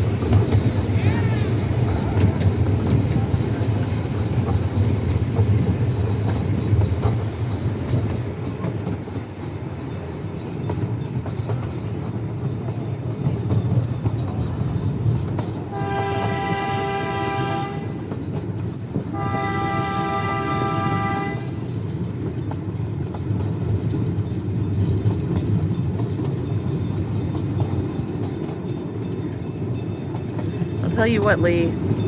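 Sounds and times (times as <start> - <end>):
train rumbling: 0.0 - 32.0
train horn blasts: 15.7 - 18.0, 19.1 - 21.6.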